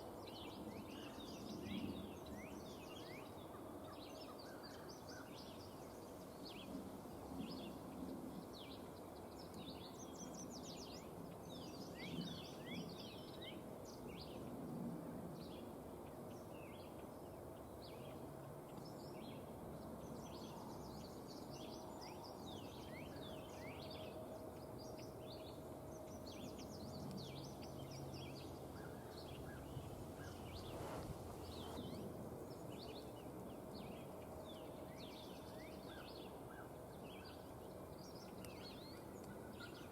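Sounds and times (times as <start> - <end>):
outdoor hush: 27.0 - 32.6.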